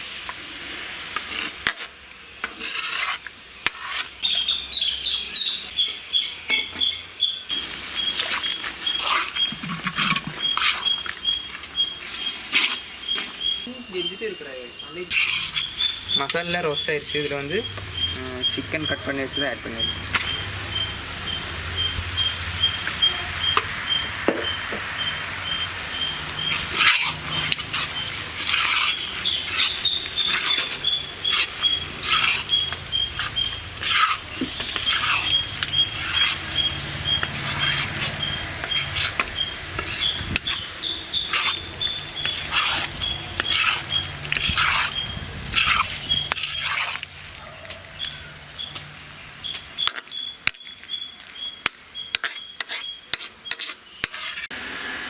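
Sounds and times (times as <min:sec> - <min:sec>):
chicken sizzling in a pan: 0:00.0 - 0:04.6, 0:07.5 - 0:55.0
ladle scraping a pan: 0:00.6 - 0:05.0, 0:07.5 - 0:13.7, 0:15.1 - 0:55.0
faint pulsing high chirp: 0:10.4 - 0:26.6.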